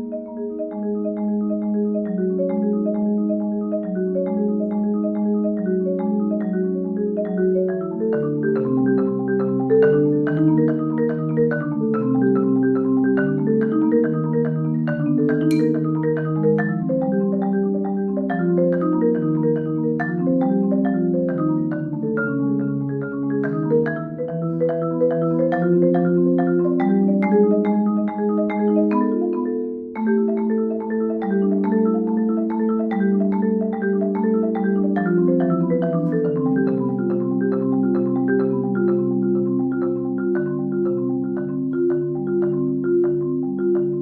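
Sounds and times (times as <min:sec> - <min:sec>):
marimba played with mallets: 0:00.0 - 0:44.0.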